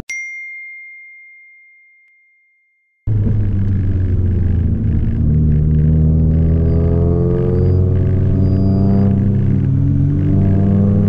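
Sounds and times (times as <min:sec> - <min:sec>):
bell-like ding: 0:00.0 - 0:03.0
car engine accelerating: 0:03.1 - 0:11.0.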